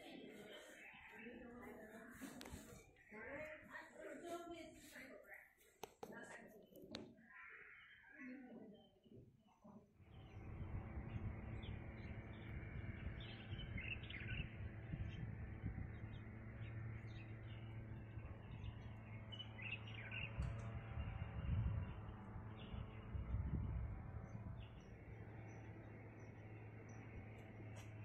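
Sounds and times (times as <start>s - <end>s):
birds chirping: 0.0s - 5.2s, 6.0s - 28.0s
faint hum: 10.0s - 28.0s
low rumbling noise: 10.0s - 28.0s.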